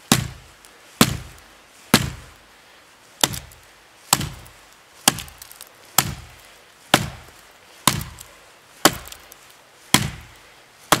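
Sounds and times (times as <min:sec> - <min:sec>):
axe chopping into tree trunk: 0:00.1 - 0:00.4, 0:01.0 - 0:02.3, 0:03.2 - 0:06.3, 0:06.9 - 0:09.3, 0:09.9 - 0:10.3.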